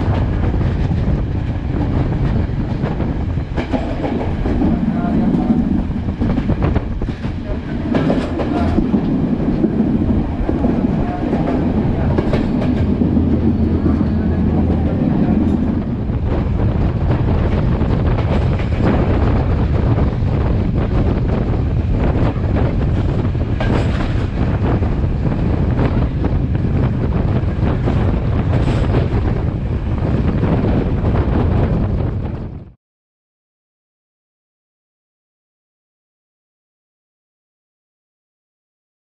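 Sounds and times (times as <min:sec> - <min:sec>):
train wheels clacking over rail joints: 0:00.0 - 0:15.8, 0:21.2 - 0:24.8, 0:27.4 - 0:29.3
train carriage rumble: 0:00.0 - 0:32.8.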